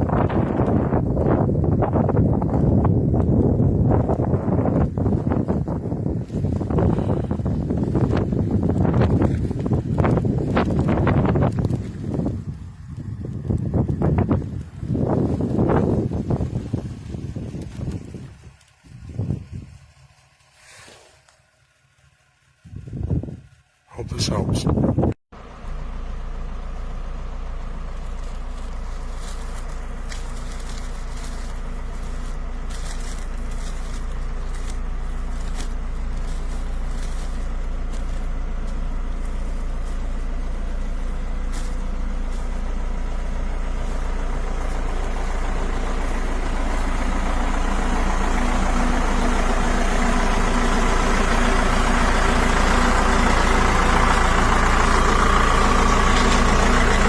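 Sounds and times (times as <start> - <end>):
truck engine idling: 0.0 - 57.0
hiss: 20.5 - 21.4.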